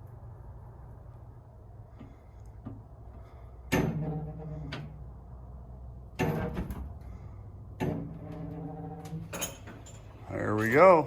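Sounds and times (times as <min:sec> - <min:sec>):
steady low hum: 0:00.0 - 0:11.0
metal clanking: 0:03.6 - 0:05.0, 0:07.8 - 0:10.2.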